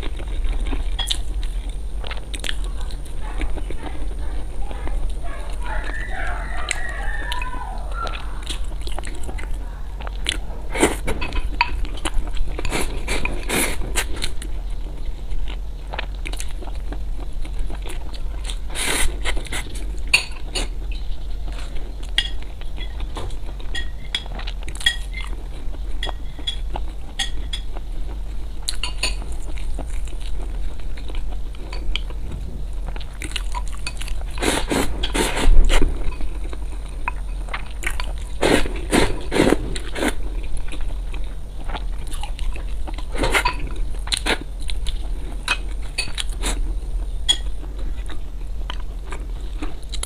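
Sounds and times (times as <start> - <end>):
crunching and chewing: 0.0 - 50.0
steady low hum: 0.0 - 50.0
utensils scraping a dish: 33.9 - 36.3.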